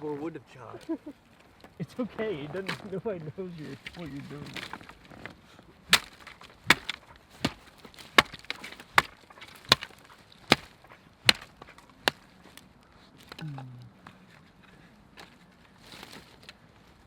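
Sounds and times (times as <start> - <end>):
axe chopping wood: 3.8 - 4.9, 5.9 - 12.3.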